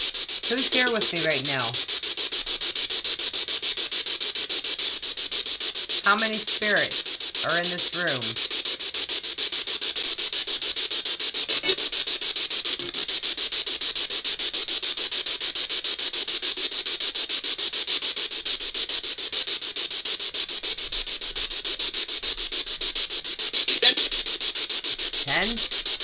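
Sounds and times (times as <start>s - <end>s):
rapidly chopped static hiss: 0.0s - 26.0s.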